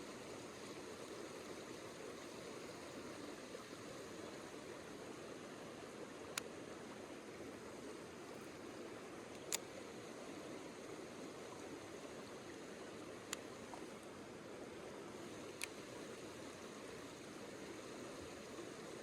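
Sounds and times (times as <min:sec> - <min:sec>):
stream water running: 0:00.0 - 0:19.0.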